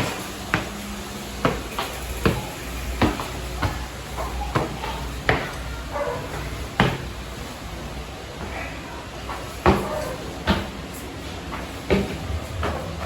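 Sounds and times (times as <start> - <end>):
footsteps climbing stairs: 0.0 - 7.6.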